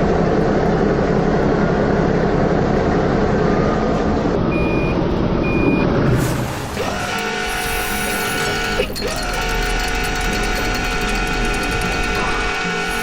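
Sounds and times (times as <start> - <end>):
heavy vehicle engine running: 0.0 - 13.0
high reversing beeps: 4.5 - 13.0.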